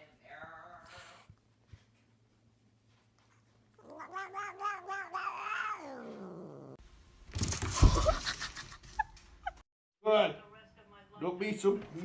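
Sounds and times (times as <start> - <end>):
cat yowling: 3.8 - 6.8.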